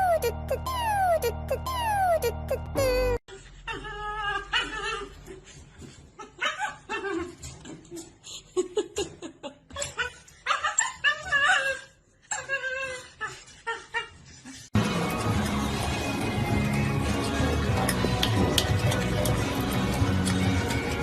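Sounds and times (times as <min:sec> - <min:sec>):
dog making pitch-bending calls: 0:00.0 - 0:03.2.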